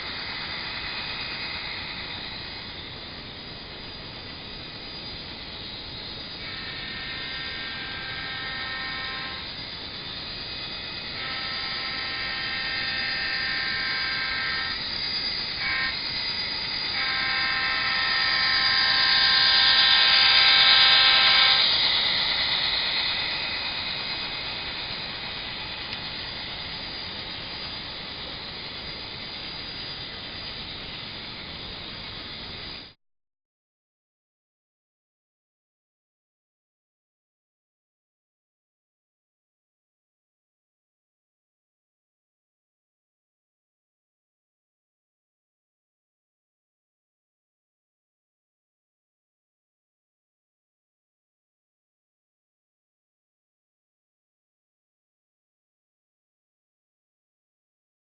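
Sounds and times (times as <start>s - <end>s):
locomotive horn blasts: 6.4s - 9.4s, 15.6s - 16.0s, 17.0s - 21.6s
diesel engine sound: 19.0s - 29.2s.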